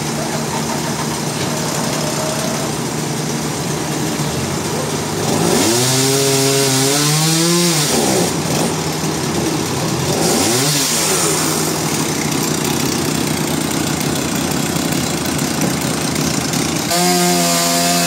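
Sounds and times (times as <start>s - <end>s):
sawmill engine revving: 0.0s - 18.0s.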